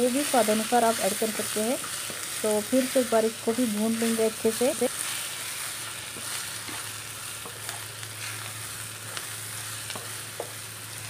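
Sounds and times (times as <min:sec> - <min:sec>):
vegetables sizzling in oil: 0:00.0 - 0:11.0
spatula tapping and scraping pan: 0:09.9 - 0:10.6.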